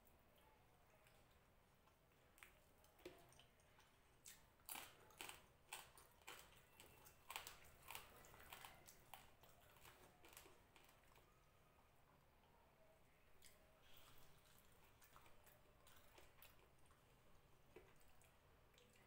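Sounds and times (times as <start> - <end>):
person chewing food: 0.4 - 11.3, 13.4 - 19.0.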